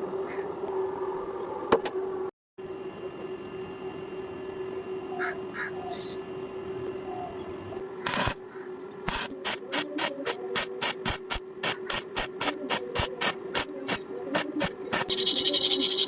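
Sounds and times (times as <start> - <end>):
welding arc crackling: 9.1 - 15.4.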